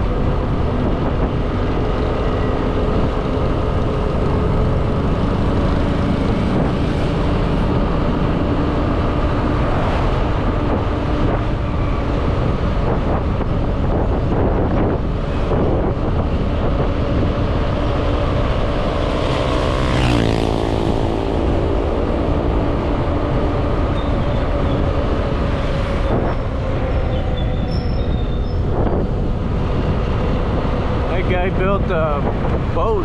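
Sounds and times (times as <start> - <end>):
wind rushing over microphone: 0.0 - 33.0
motorbike engine running: 16.0 - 25.5.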